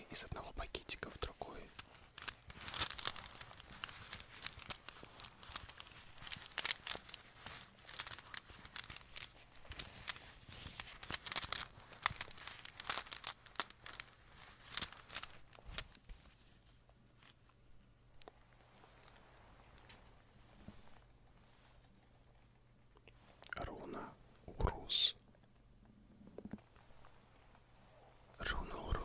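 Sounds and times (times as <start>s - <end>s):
small bag crinkling: 1.5s - 17.5s
rune pieces clicking together: 1.7s - 16.0s.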